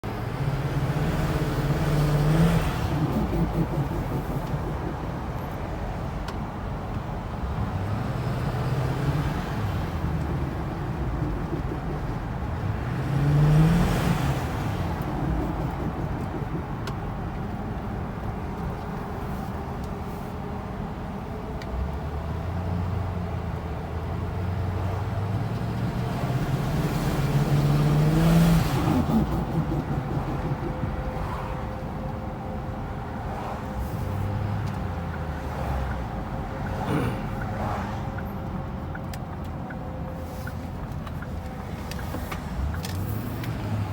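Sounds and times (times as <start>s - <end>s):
diesel truck engine accelerating: 0.0s - 43.9s
turbo flutter: 1.7s - 5.7s, 9.1s - 17.6s, 27.0s - 32.2s.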